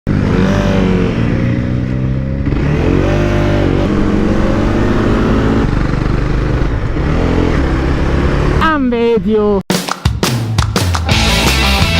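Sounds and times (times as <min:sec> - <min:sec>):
motorcycle engine revving: 0:00.1 - 0:08.6.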